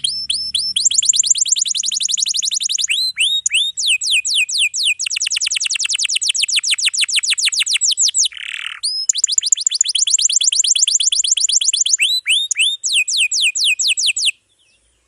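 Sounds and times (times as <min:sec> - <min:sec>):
harsh raspy bird note: 0:00.0 - 0:04.9
canary singing trills: 0:00.0 - 0:14.9.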